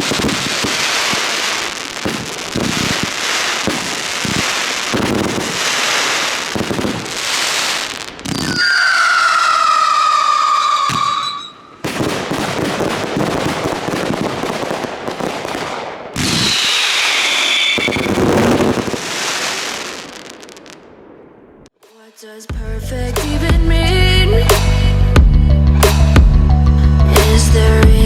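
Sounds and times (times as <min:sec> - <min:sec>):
fireworks crackling and popping: 0:00.0 - 0:21.8
firework whistling scream: 0:02.8 - 0:11.9, 0:16.2 - 0:20.8.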